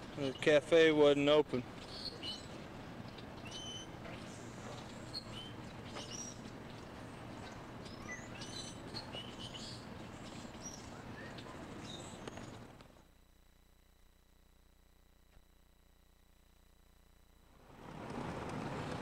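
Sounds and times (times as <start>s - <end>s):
small birds chirping: 0.0s - 12.8s
outdoor background noise: 0.0s - 19.0s.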